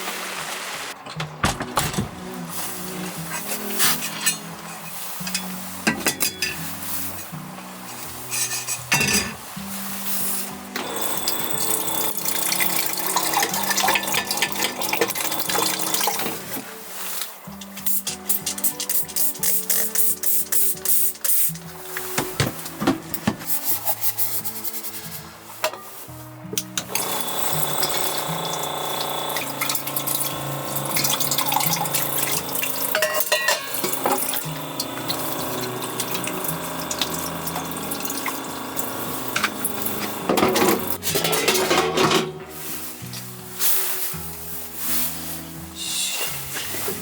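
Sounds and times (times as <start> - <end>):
background music: 0.8 - 47.0
tap water running: 10.7 - 16.7, 26.6 - 42.4.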